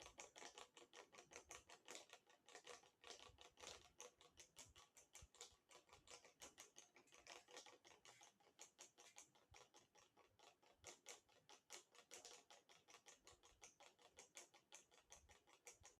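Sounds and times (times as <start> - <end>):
ceiling fan clicking: 0.0 - 10.2.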